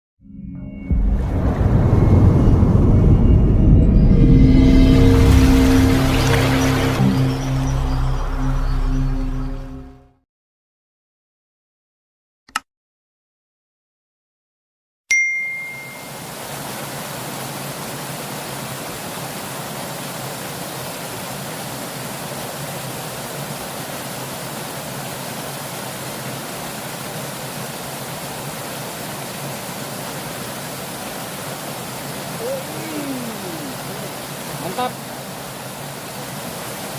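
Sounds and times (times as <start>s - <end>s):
river water rushing: 4.9s - 8.3s, 15.4s - 36.9s
short sharp ding: 15.1s - 16.2s.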